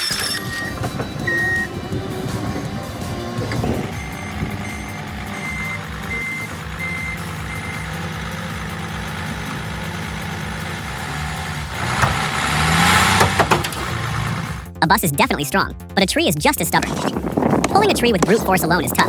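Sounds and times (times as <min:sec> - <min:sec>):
back-up alarm beeping: 0:00.0 - 0:09.4
heavy vehicle engine running: 0:00.0 - 0:15.1.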